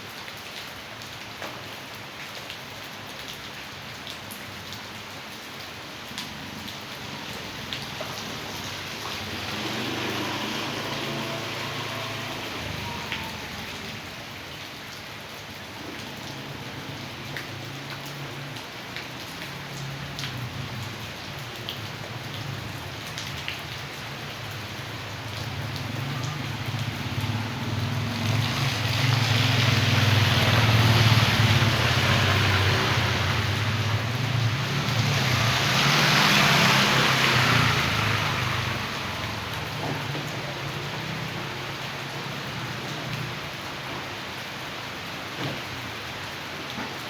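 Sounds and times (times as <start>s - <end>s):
heavy rain falling: 0.0s - 47.0s
passing vehicle rumble: 7.8s - 14.2s, 24.6s - 43.6s.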